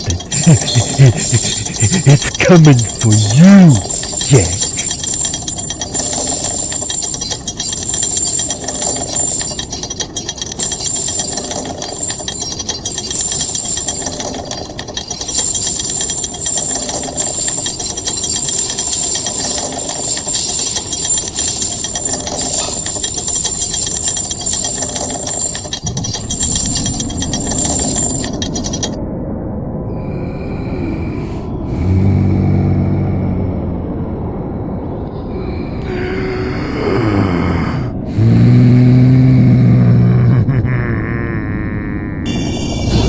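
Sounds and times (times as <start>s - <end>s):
harsh pulsing machine noise: 0.0s - 29.0s, 42.2s - 43.0s.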